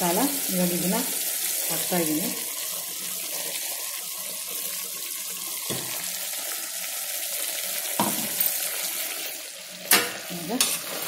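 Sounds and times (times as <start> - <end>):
chicken sizzling in cooker: 0.0 - 11.0.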